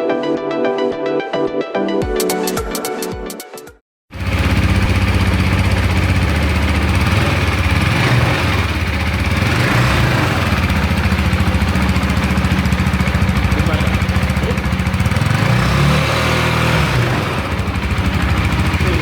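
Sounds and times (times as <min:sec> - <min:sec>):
motorcycle engine idling: 0:04.1 - 0:19.0.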